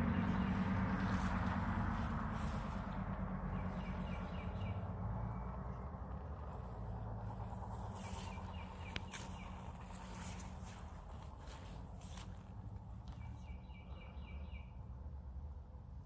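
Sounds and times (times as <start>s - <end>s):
riding mower engine running: 0.0s - 14.6s
bird chirps: 3.5s - 5.8s, 7.9s - 10.5s, 13.1s - 14.7s.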